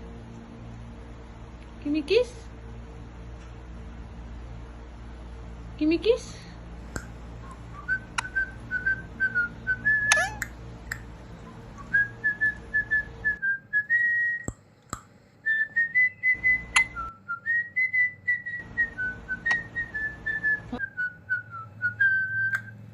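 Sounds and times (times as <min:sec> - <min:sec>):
person whistling a tune: 0:07.0 - 0:14.6, 0:15.5 - 0:22.8.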